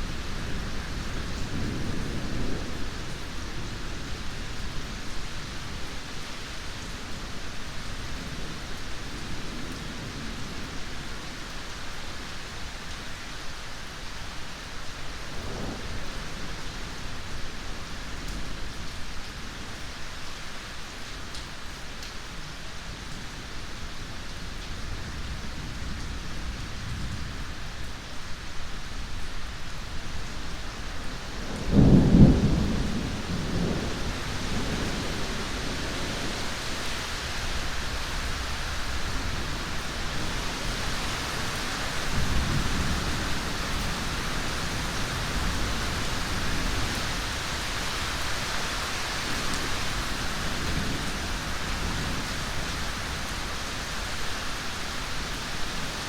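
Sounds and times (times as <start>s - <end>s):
steady rain: 0.0s - 56.0s
rolling thunder: 31.3s - 47.4s.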